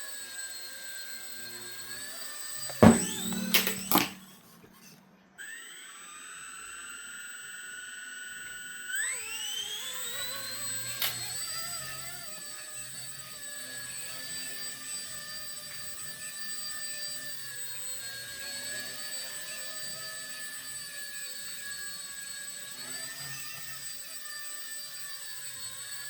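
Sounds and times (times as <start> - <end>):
knocks: 2.7 - 4.3.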